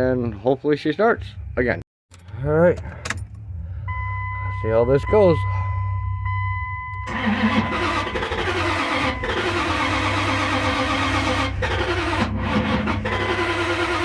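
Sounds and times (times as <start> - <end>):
engine starter cranking: 7.0 - 14.0.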